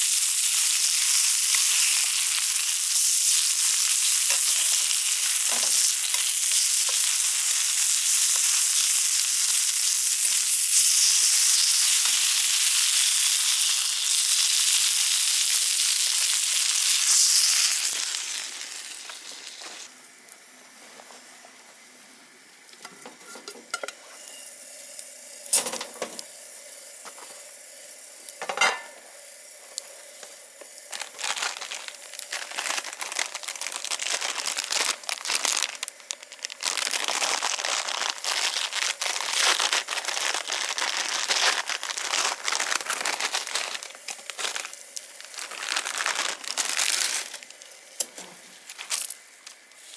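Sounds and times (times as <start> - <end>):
food sizzling in hot oil: 0.0 - 20.5, 23.1 - 49.9.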